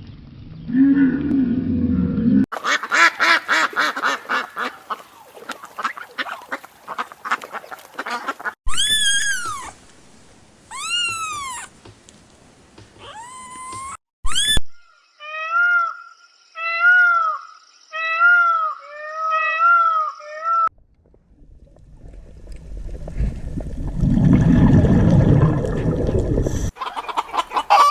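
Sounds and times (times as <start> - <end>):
short overlapping animal calls: 2.6 - 9.6
long rising and falling animal calls: 10.7 - 11.7, 13.0 - 14.6.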